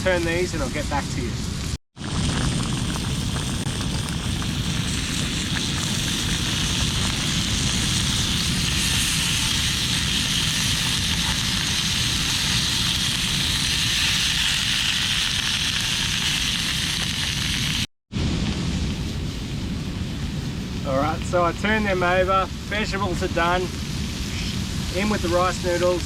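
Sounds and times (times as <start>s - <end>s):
low rumble: 0.0s - 26.0s
fish sizzling in a hot pan: 2.0s - 17.9s.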